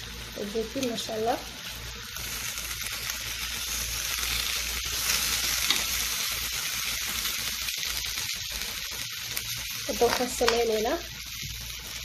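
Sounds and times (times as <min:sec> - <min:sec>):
food sizzling in a pan: 0:00.0 - 0:12.0
metal tongs clicking on pan: 0:05.6 - 0:05.9, 0:10.0 - 0:10.7.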